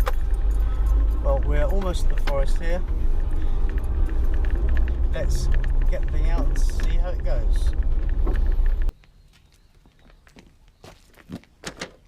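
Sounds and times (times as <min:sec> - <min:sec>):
small clicks and knocks: 0:00.0 - 0:09.0
faint footsteps: 0:00.0 - 0:12.0.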